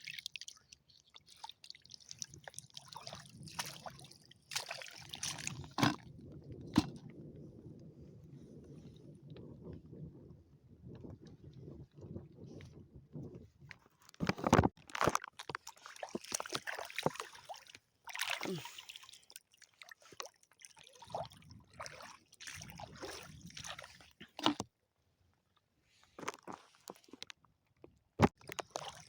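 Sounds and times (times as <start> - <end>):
seawater sloshing and splashing: 0.0 - 6.1, 14.9 - 24.6, 28.4 - 29.0.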